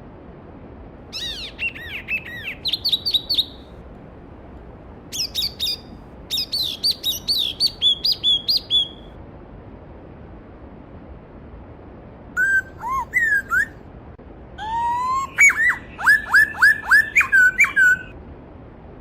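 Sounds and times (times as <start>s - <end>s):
songbird singing: 1.1s - 3.8s, 5.1s - 9.1s, 12.4s - 13.8s, 14.6s - 18.2s.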